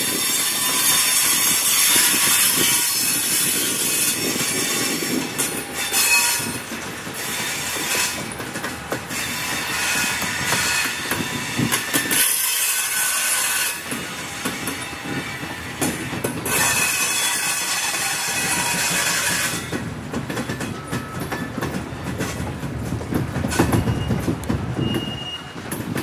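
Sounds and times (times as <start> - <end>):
train wheels clicking over rail joints: 0.0 - 26.0
high-pitched wheel squeal: 23.5 - 25.6.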